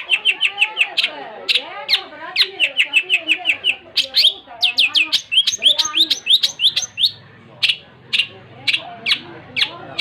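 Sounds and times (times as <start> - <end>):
shrike singing: 0.0 - 10.0.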